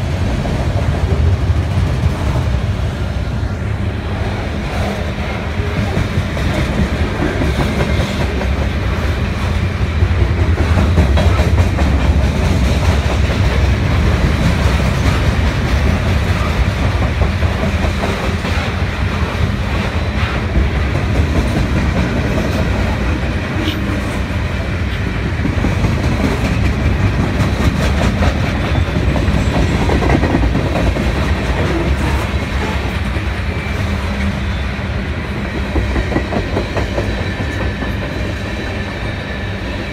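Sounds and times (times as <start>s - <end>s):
freight train wheels rumbling: 0.0s - 39.9s
wheels clacking over rail joints: 20.2s - 33.3s.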